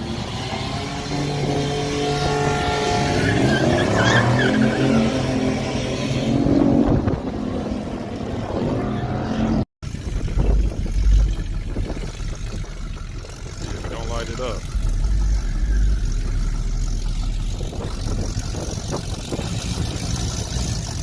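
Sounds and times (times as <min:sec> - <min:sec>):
car engine revving: 0:00.0 - 0:21.0
low engine rumble: 0:09.2 - 0:21.0.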